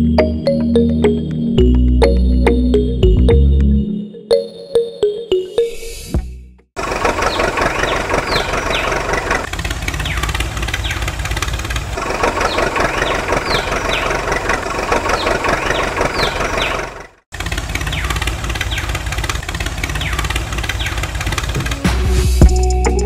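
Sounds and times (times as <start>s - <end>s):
tractor diesel engine chugging: 6.8s - 22.0s.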